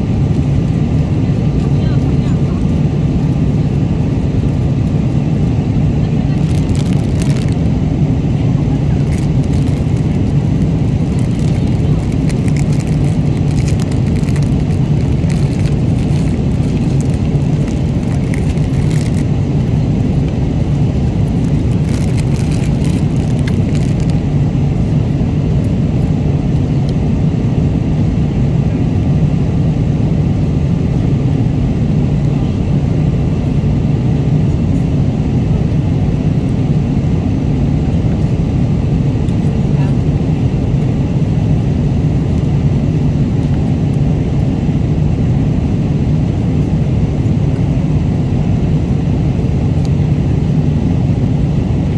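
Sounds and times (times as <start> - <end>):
airliner cabin engine rumble: 0.0 - 51.9.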